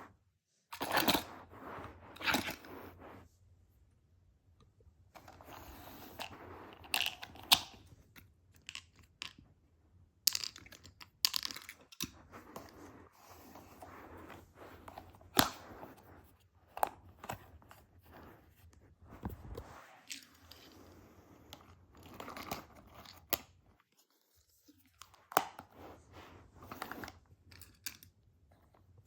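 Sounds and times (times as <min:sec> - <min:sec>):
plastic pieces clicking and knocking: 0:10.3 - 0:12.1.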